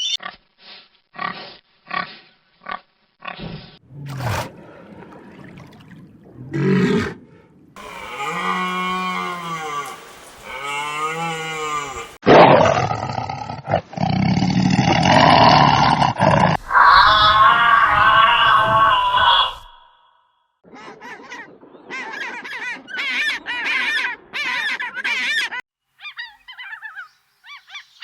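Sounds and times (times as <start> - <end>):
loud rough animal roar: 3.8 - 4.9, 6.4 - 7.2, 7.8 - 19.8
animal calls rising and falling: 7.8 - 12.2, 16.6 - 20.0.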